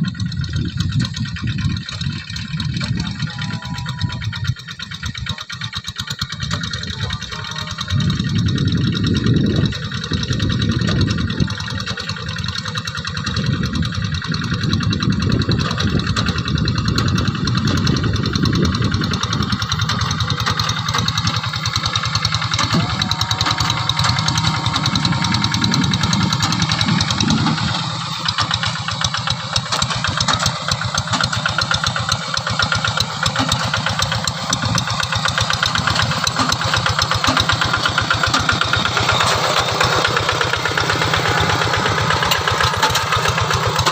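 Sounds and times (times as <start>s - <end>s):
hand tractor engines running: 0.0s - 43.9s.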